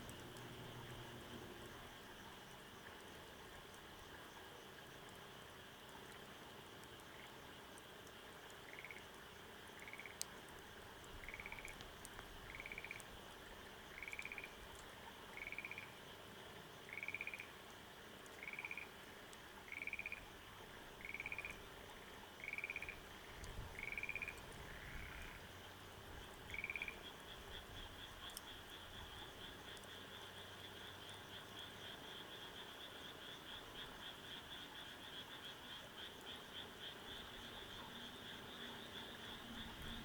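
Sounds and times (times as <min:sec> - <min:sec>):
wood fire crackling: 0:10.2 - 0:14.9.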